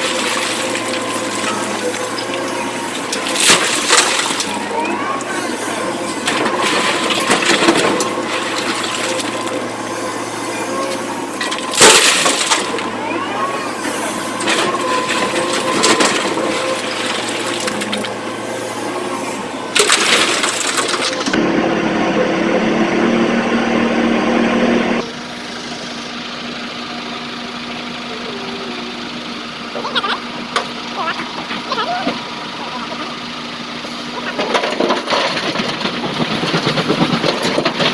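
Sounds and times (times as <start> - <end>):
rocks crashing into steel truck bed: 0.0 - 4.6, 6.1 - 9.6, 11.3 - 12.9, 14.2 - 18.1, 19.7 - 21.3, 34.3 - 37.9
excavator engine running: 0.0 - 37.9.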